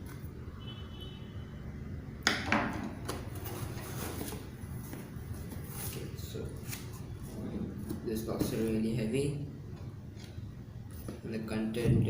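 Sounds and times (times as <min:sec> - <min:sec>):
cardboard packaging handled: 0:03.0 - 0:08.8.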